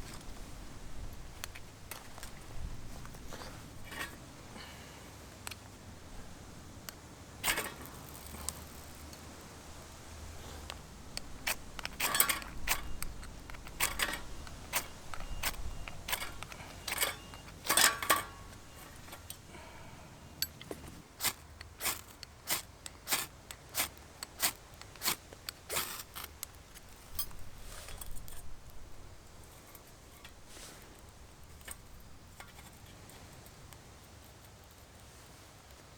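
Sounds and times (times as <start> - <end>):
wood fire crackling: 0.0 - 35.9.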